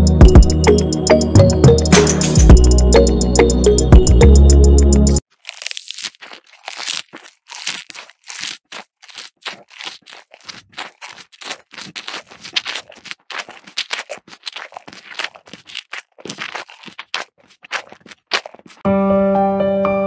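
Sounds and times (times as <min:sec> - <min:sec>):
grass crunching and tearing: 0:05.2 - 0:18.8.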